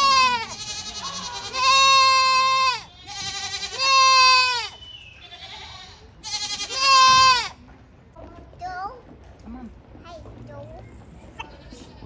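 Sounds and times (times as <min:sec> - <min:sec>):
young goats bleating: 0:00.0 - 0:07.6, 0:11.4 - 0:12.0.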